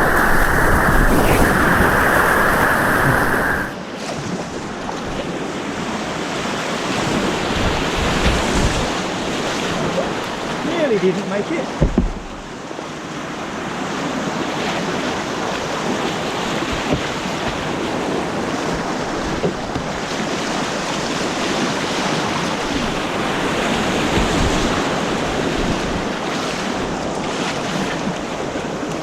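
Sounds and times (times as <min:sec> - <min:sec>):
rushing white water: 0:00.0 - 0:03.8.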